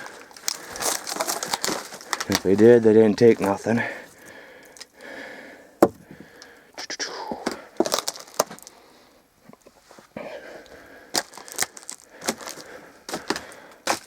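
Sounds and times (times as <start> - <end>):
dry wood snapping underfoot: 0.0 - 5.1, 5.8 - 6.6, 7.4 - 8.8, 10.6 - 14.0.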